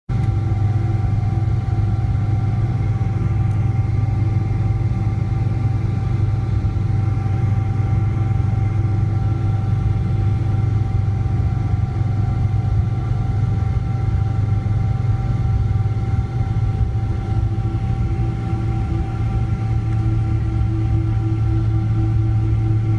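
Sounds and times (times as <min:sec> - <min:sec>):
jet engine drone inside cabin: 0:00.1 - 0:22.9.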